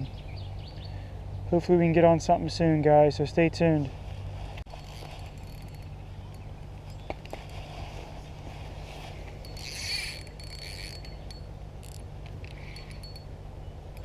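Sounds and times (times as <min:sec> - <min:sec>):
bite indicator clicking and ringing: 0:04.7 - 0:07.6, 0:09.4 - 0:14.0.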